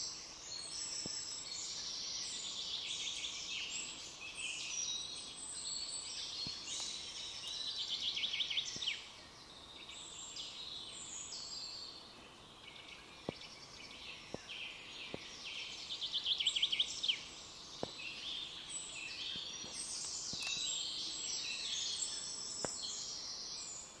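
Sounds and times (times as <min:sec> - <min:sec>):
songbirds singing: 0:00.0 - 0:24.0
faint light clicks: 0:19.3 - 0:20.8.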